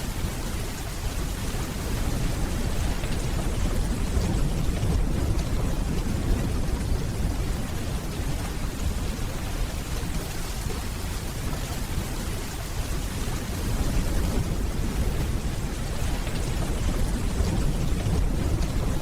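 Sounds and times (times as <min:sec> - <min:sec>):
steady rainfall: 0:00.0 - 0:19.0
distant thunder rumbling: 0:02.0 - 0:09.9, 0:13.6 - 0:19.0.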